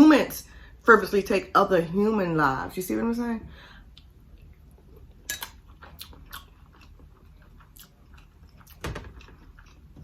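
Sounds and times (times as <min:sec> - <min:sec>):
person chewing food: 0:03.8 - 0:10.0
wet mouth clicks: 0:05.3 - 0:06.4.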